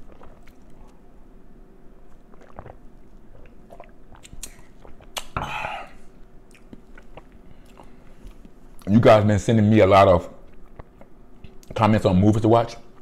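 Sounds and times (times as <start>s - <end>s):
person chewing food: 0.0s - 1.0s, 2.0s - 5.7s, 6.5s - 8.9s, 10.4s - 11.7s
wet mouth clicks and smacks: 3.4s - 5.4s.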